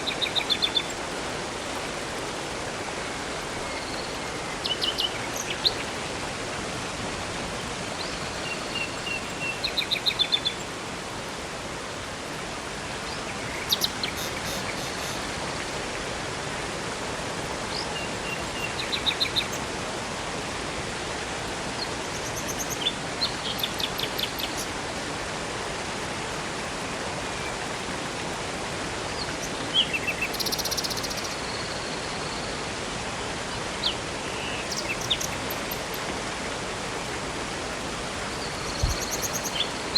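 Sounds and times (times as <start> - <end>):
river and waterfall rushing: 0.0 - 39.9
songbirds chirping and trilling: 13.1 - 15.3, 29.1 - 31.7, 33.9 - 36.0, 38.2 - 39.9.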